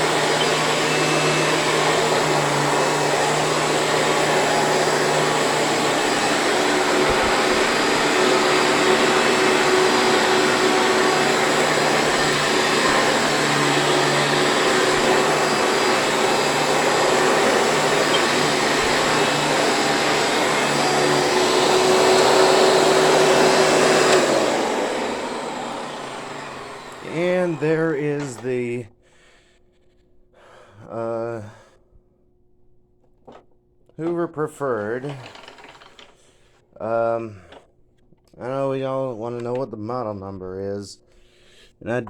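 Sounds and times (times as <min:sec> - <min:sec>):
upright vacuum cleaner running: 0:00.0 - 0:28.8, 0:35.0 - 0:36.0.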